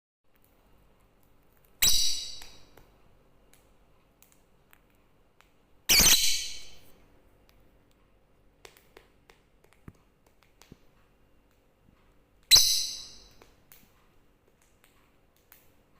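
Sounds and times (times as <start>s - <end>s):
lovebird shrill screeching: 1.8s - 2.6s, 5.9s - 6.8s, 12.5s - 13.3s.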